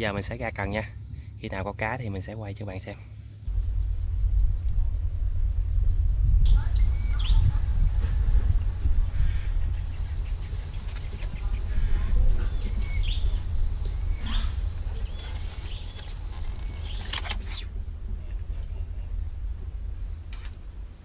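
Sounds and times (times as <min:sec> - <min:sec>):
low rumble: 0:03.5 - 0:21.0
bird chirps: 0:06.5 - 0:17.7
high-pitched insect buzz: 0:06.5 - 0:17.7.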